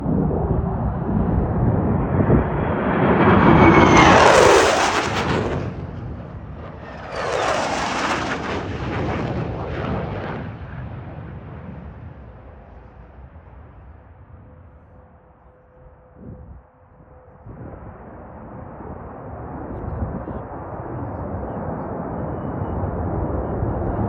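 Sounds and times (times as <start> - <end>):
fighter jet passing low: 0.0 - 14.7.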